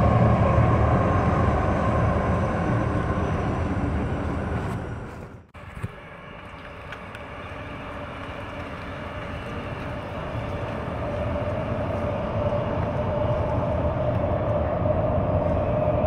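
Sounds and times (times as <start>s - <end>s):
electric train rumble: 0.0s - 16.0s
steady whine: 0.0s - 16.0s.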